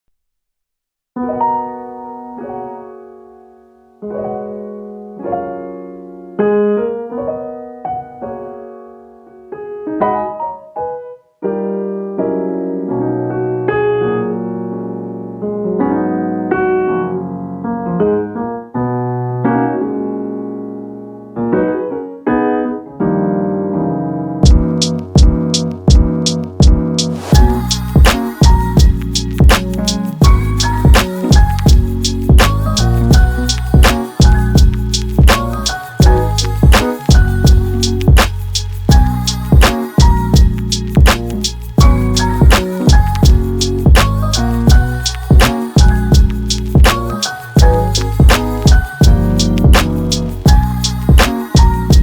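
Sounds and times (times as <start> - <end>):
piano chords: 1.2 - 52.0
drum beats: 24.4 - 52.0.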